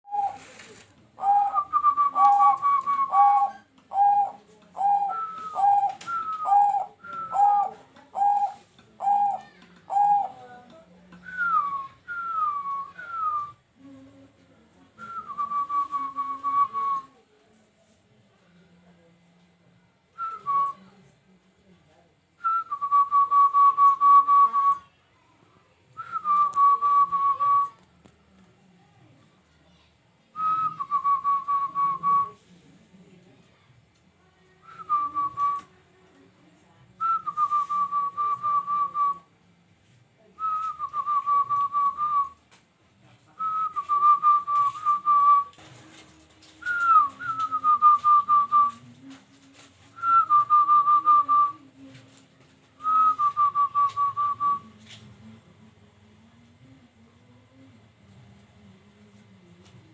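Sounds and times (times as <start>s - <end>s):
whistled phrases: 0.0s - 10.4s, 11.1s - 14.1s, 15.0s - 17.2s, 22.4s - 24.9s, 25.9s - 27.8s, 30.3s - 32.4s, 34.6s - 35.8s, 37.0s - 39.3s, 40.4s - 42.5s, 43.4s - 45.7s, 46.5s - 55.0s.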